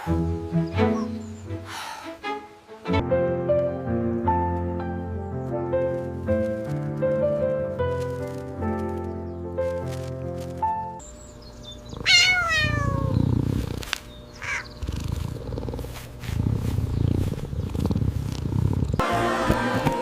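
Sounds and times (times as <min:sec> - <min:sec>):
music: 0:00.0 - 0:11.0, 0:19.0 - 0:20.0
cat purring: 0:11.4 - 0:19.0
cat meowing: 0:12.0 - 0:13.2, 0:14.4 - 0:14.7.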